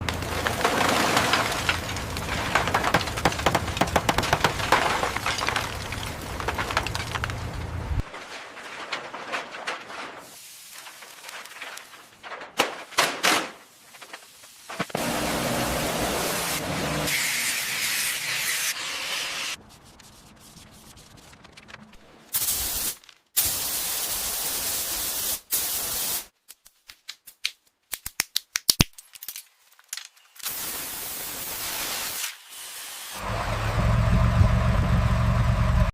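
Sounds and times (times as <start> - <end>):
spraying hiss: 22.4 - 26.3, 30.4 - 33.2.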